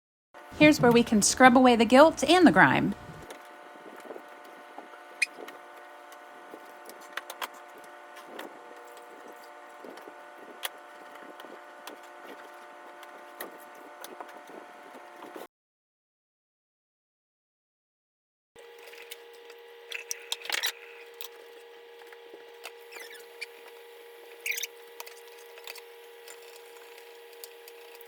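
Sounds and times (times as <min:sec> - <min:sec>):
steady hum: 0:00.4 - 0:15.5, 0:18.6 - 0:28.0.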